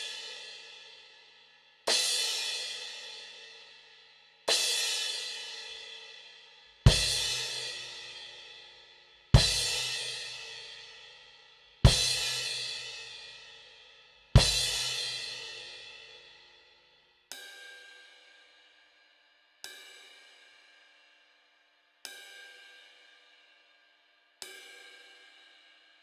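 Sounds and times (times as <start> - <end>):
bell-like cymbal strikes: 4.5 - 16.6, 17.3 - 20.9.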